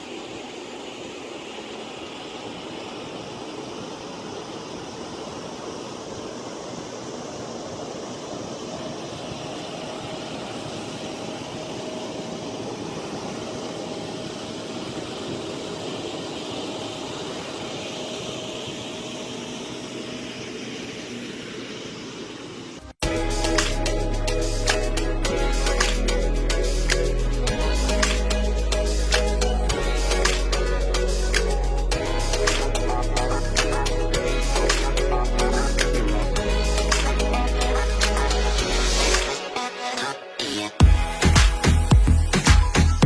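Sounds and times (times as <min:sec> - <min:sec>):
faint steady whine: 0:00.0 - 0:43.0
vehicle engine drone: 0:05.5 - 0:39.4.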